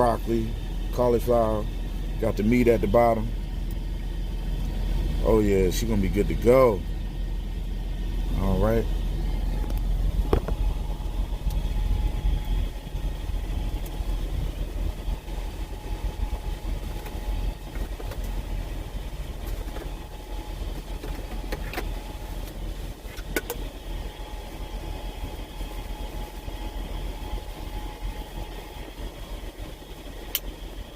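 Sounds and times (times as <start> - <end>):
diesel truck engine idling: 0.0 - 30.9.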